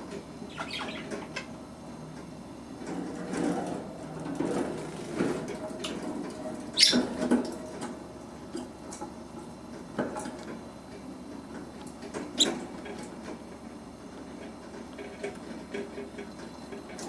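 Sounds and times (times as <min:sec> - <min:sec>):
chicks squeaking: 0:00.5 - 0:01.4, 0:06.8 - 0:07.1.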